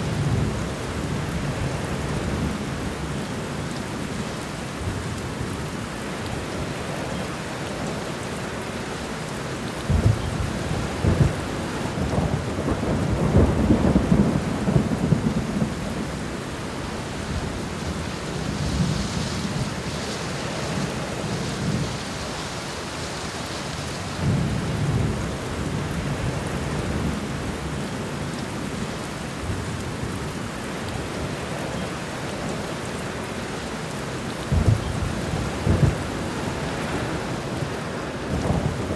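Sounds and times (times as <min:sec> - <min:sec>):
steady rain falling: 0:00.0 - 0:38.9
thunder rumbling: 0:09.8 - 0:22.6, 0:34.4 - 0:38.9.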